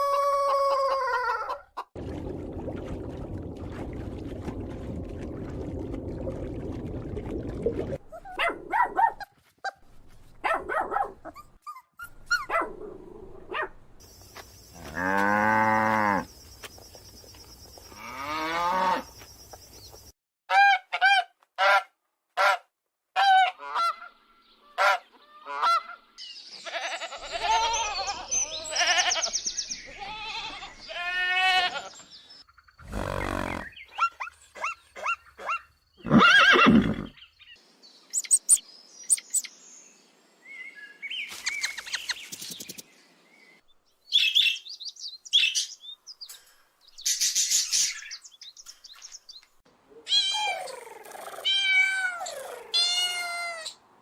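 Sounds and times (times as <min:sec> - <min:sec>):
thin high chirps: 0:38.1 - 0:39.5.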